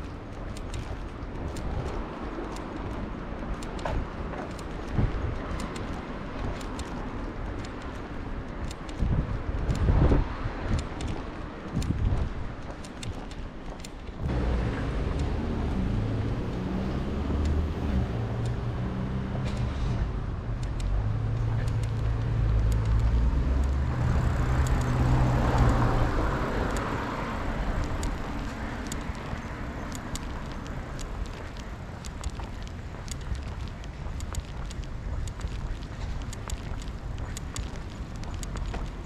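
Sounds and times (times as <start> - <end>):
distant traffic: 0.0 - 39.0
vehicle engine hum: 12.8 - 39.0.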